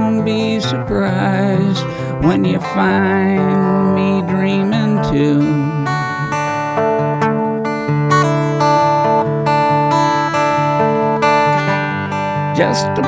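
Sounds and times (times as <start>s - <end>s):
person singing: 0.0s - 6.8s, 11.0s - 13.0s
acoustic guitar strummed: 0.0s - 13.0s.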